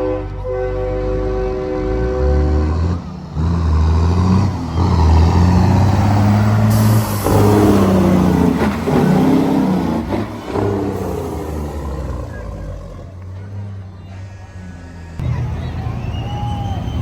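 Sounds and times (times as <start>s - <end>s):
diesel truck engines revving: 0.0s - 17.0s.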